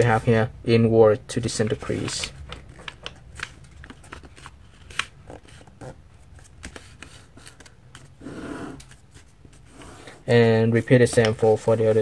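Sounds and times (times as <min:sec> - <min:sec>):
paper crackling and folding: 0:01.5 - 0:08.1.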